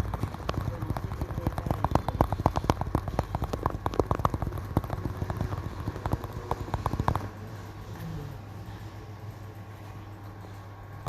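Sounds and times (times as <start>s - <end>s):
fingers tapping on a hard surface: 0.0s - 8.1s.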